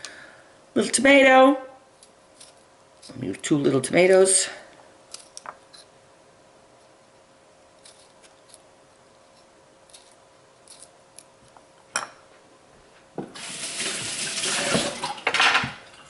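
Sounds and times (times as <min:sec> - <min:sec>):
water running into sink: 0:13.4 - 0:15.8.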